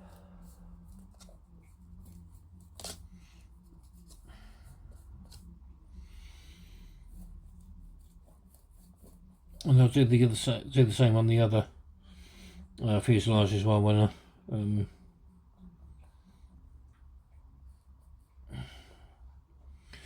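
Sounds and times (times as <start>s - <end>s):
paintbrush scratching on plastic: 0.0s - 11.6s.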